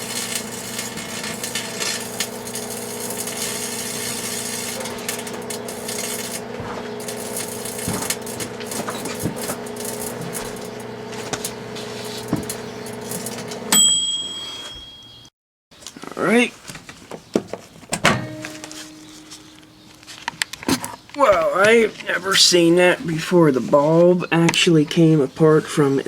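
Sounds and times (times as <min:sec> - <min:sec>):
light bulb crackling and clicking: 0:00.0 - 0:13.6
microwave oven humming: 0:00.0 - 0:15.0.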